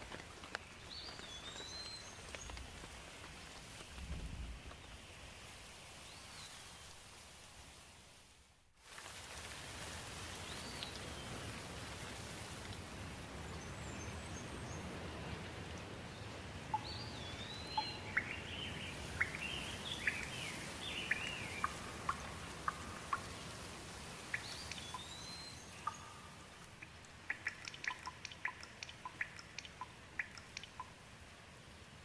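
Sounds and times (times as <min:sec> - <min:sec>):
steady rain: 0:00.0 - 0:32.0
water drips ticking: 0:14.4 - 0:31.1.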